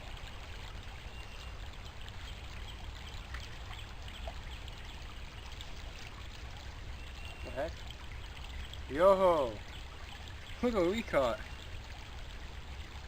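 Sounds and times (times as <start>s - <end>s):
creek water trickling: 0.0s - 13.0s
faint bird chirps: 6.9s - 8.9s.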